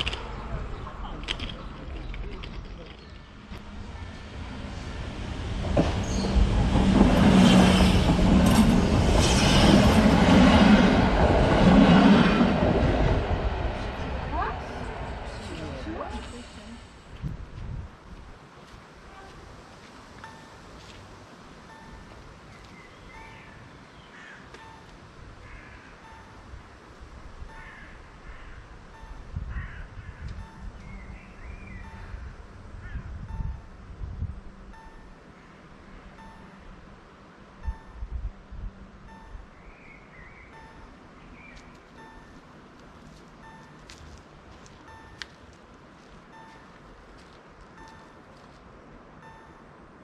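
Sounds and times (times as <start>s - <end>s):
rail wheel noise: 0.0s - 50.0s
diesel train engine drone: 3.1s - 18.3s
crow cawing: 24.1s - 24.5s, 25.4s - 26.0s, 27.6s - 28.7s, 29.5s - 30.2s
faint repeating short tone: 28.9s - 29.4s, 34.6s - 35.4s, 36.1s - 36.8s, 37.6s - 38.4s, 39.0s - 41.0s, 42.0s - 42.5s, 43.4s - 43.8s, 44.8s - 45.3s, 46.3s - 46.7s, 47.8s - 48.3s, 49.1s - 50.0s.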